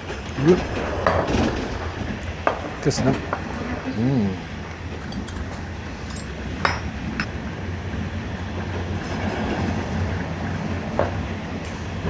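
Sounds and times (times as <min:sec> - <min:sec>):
moving train rumble: 0:00.0 - 0:12.0
sharp clinks: 0:04.6 - 0:07.3.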